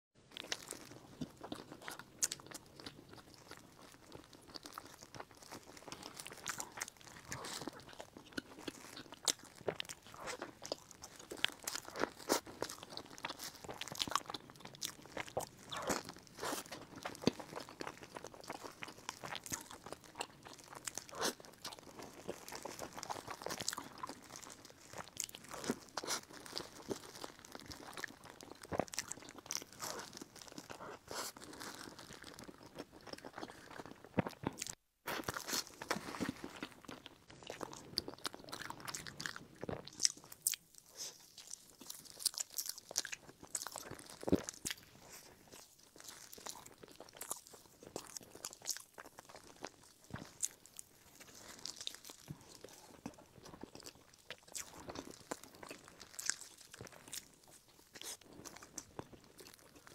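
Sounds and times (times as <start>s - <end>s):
crunchy chewing of bread roll: 0.3s - 59.9s.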